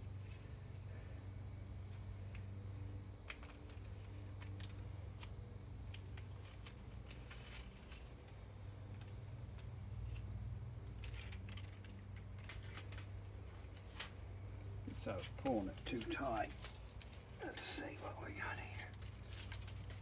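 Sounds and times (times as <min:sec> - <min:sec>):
foil tape crinkling: 0:03.3 - 0:10.2, 0:11.0 - 0:14.2, 0:18.7 - 0:20.0.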